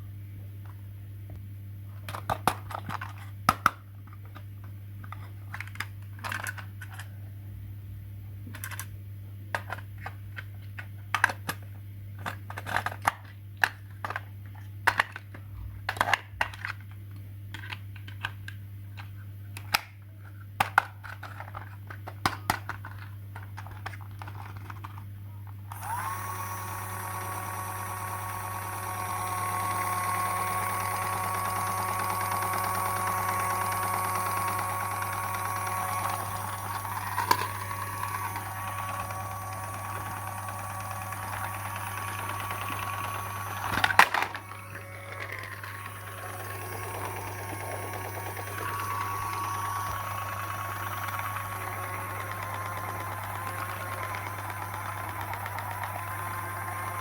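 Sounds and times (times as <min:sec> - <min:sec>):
small electric motor whine: 0:25.7 - 0:57.0.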